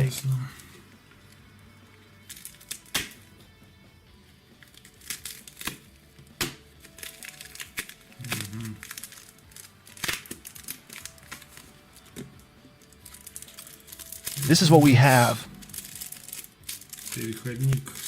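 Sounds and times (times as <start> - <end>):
faint background music: 0.0 - 18.0
plastic packaging crinkling and tearing: 4.6 - 5.8, 6.8 - 12.1, 12.8 - 14.5, 15.7 - 18.0.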